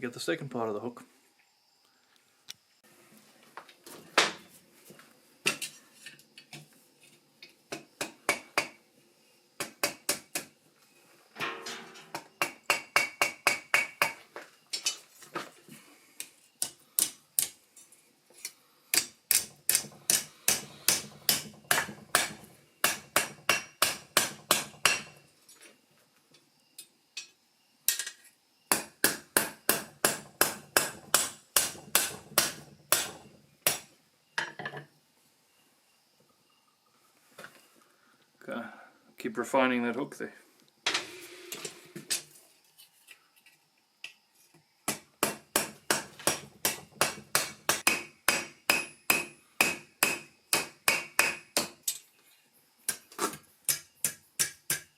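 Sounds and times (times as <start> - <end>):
hammer striking steel on anvil: 11.4 - 14.1, 19.0 - 25.1, 45.2 - 51.7.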